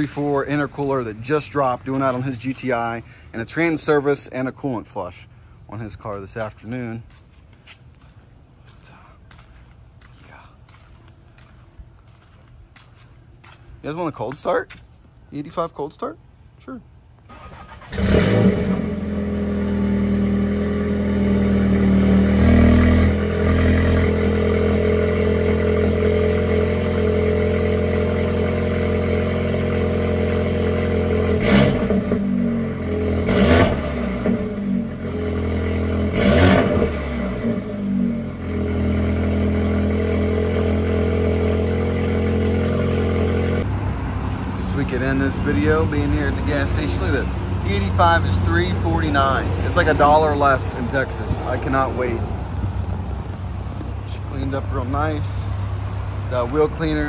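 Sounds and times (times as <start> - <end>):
car engine cold start and revving: 17.3 - 57.0.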